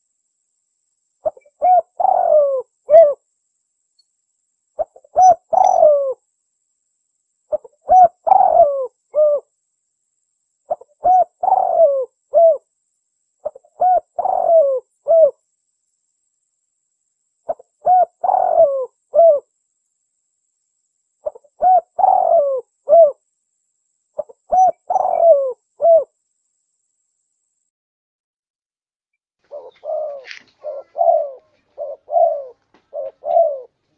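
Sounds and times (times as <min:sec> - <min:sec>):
dove cooing: 0:01.2 - 0:03.2, 0:04.8 - 0:06.2, 0:07.5 - 0:09.5, 0:10.7 - 0:12.7, 0:13.4 - 0:15.4, 0:17.5 - 0:19.5, 0:21.2 - 0:23.2, 0:24.2 - 0:26.1, 0:29.5 - 0:33.8.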